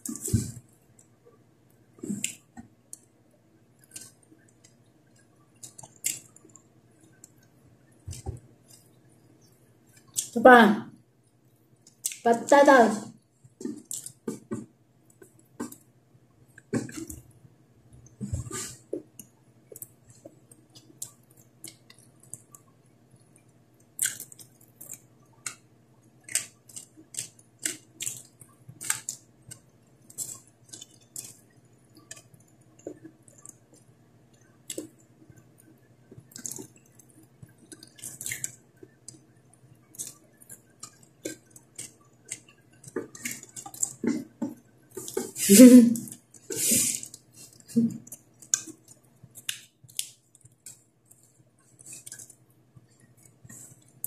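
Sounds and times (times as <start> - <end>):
lip smacks and mouth clicks: 2.0 - 3.1, 3.8 - 7.5, 10.0 - 10.4, 11.8 - 12.2, 13.6 - 14.5, 19.1 - 22.7, 23.4 - 25.6, 26.2 - 45.4, 46.0 - 54.0
wet chewing: 2.0 - 3.1, 3.8 - 10.4, 13.4 - 15.9, 18.0 - 45.4, 46.0 - 54.0.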